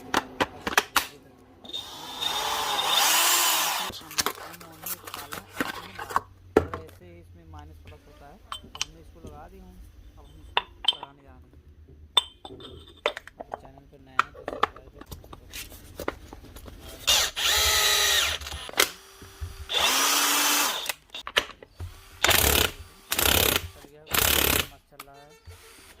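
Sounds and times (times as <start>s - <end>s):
cordless drill motor running: 1.7s - 3.9s, 17.0s - 21.0s, 21.8s - 24.7s, 25.5s - 26.0s.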